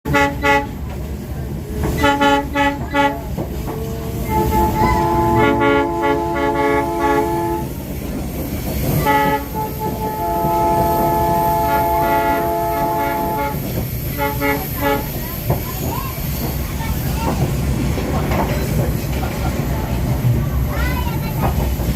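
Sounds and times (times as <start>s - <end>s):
locomotive air horn blasts: 0.0s - 0.8s, 2.0s - 7.7s, 9.0s - 15.2s
low train rumble: 0.0s - 21.9s.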